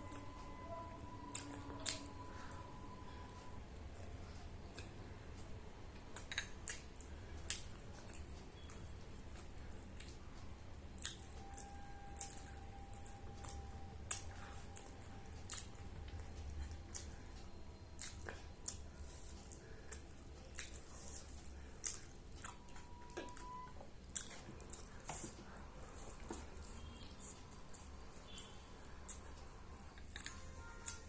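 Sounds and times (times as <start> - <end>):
low steady hum: 0.0 - 31.0
person chewing food: 1.1 - 31.0
wet mouth smacks and clicks: 6.1 - 6.8.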